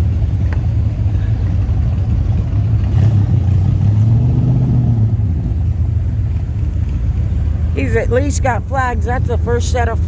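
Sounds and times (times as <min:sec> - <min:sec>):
car engine driving past: 0:00.0 - 0:07.8.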